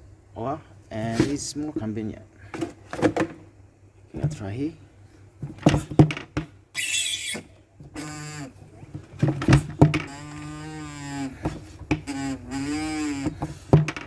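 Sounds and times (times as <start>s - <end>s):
long moo-like squeaks: 6.8s - 8.5s, 10.0s - 13.4s
oil pump knocking: 11.3s - 14.0s.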